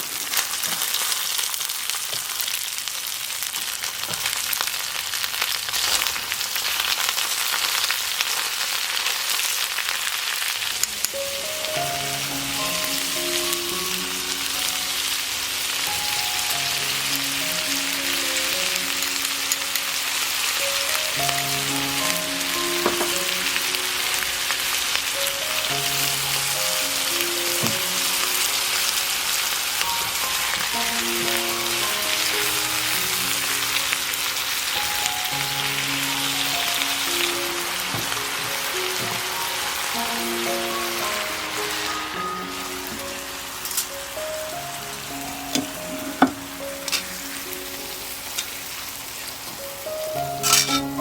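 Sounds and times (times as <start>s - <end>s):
crackles: 0.0s - 51.0s
food sizzling on a hot plate: 0.0s - 51.0s
soft background music: 11.0s - 51.0s.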